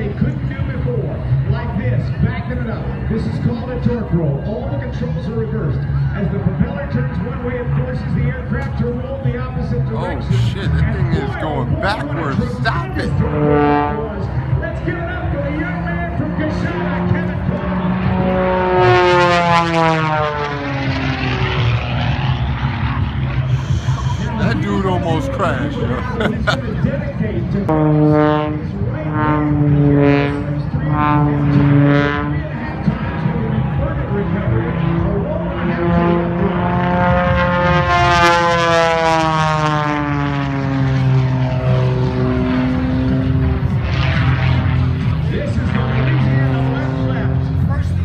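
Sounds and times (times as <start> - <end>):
propeller plane passing: 16.7 - 24.3, 36.8 - 48.0.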